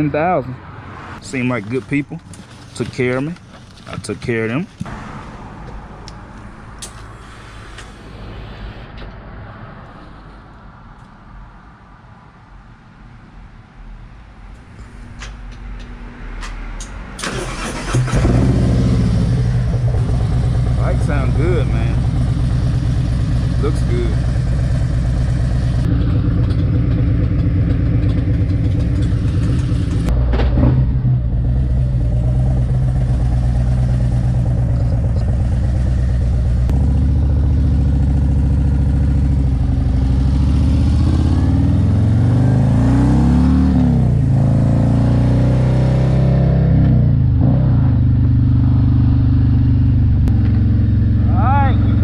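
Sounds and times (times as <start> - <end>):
motorcycle engine accelerating: 17.2 - 52.0.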